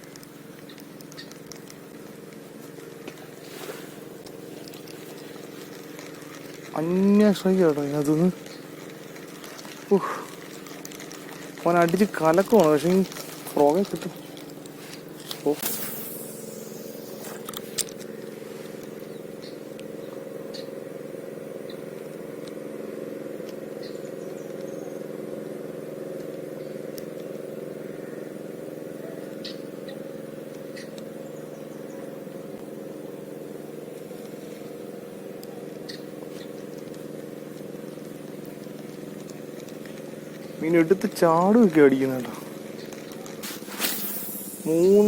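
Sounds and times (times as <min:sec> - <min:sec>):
motor humming: 0:00.0 - 0:45.0.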